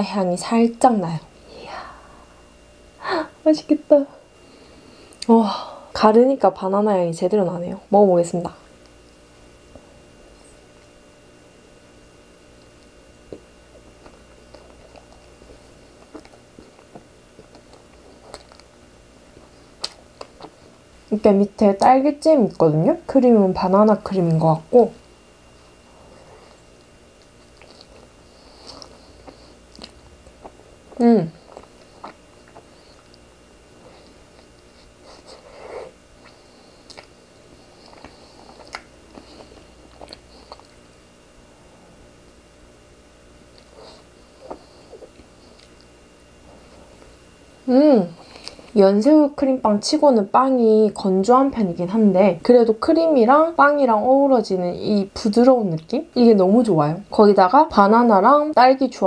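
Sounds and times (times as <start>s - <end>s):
soft chewing with wet clicks: 12.5s - 20.8s, 26.6s - 33.4s, 36.2s - 40.9s, 43.4s - 46.0s, 55.7s - 56.0s.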